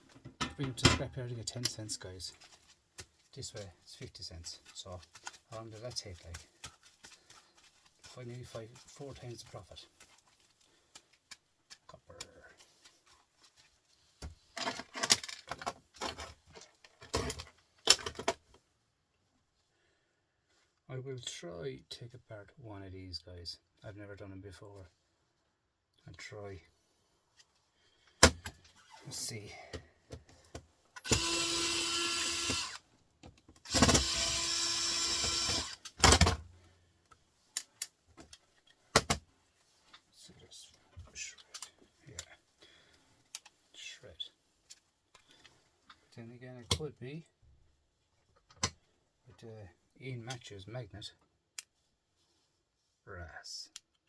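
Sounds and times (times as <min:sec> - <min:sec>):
cordless drill running: 0:31.0 - 0:32.8, 0:33.7 - 0:35.8.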